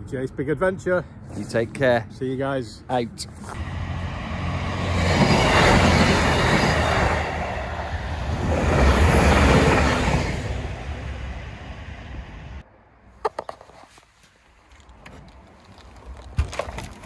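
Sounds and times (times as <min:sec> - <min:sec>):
train passing rumble: 0:03.6 - 0:12.6.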